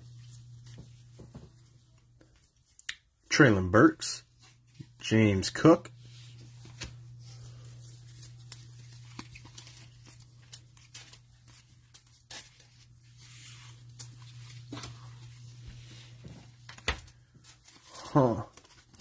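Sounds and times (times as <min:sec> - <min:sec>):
low electrical hum: 0:00.0 - 0:19.0
cards clicking and rustling: 0:06.6 - 0:13.0, 0:13.8 - 0:15.4, 0:16.6 - 0:17.8, 0:18.5 - 0:19.0.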